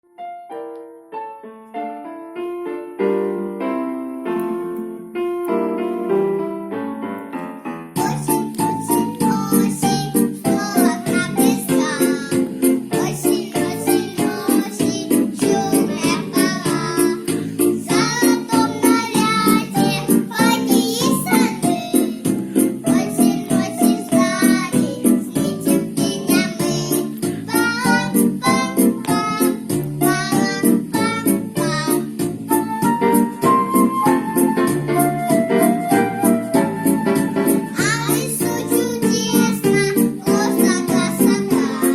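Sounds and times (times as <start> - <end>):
piano melody and chords: 0.0 - 41.9
instrumental accompaniment: 0.1 - 41.9
children singing: 8.0 - 22.3, 22.9 - 32.2, 37.7 - 41.9.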